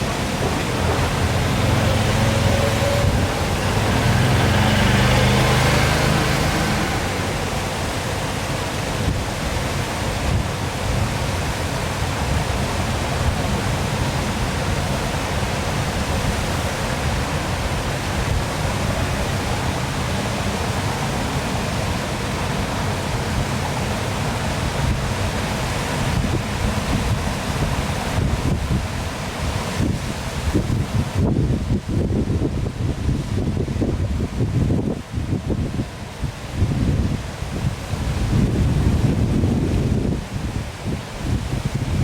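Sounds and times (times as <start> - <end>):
loud low hum: 0.0 - 7.8
waterfall rushing: 0.0 - 42.0.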